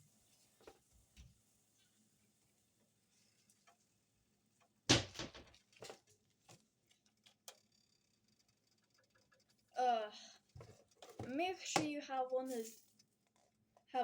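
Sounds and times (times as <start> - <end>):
kitchen objects knocking: 4.9 - 5.6.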